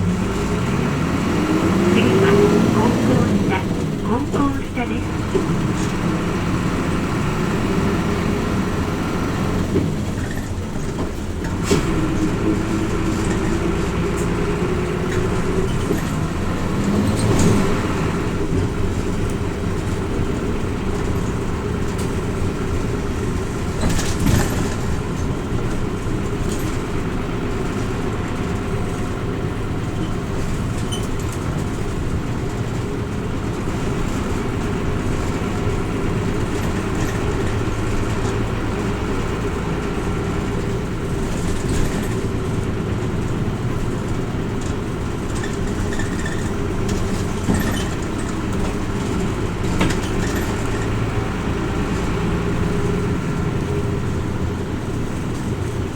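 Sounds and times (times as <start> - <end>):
bus diesel engine running: 0.0 - 55.9
road and tyre noise: 0.0 - 55.9
knocks from bus body: 23.6 - 25.4, 44.6 - 51.0.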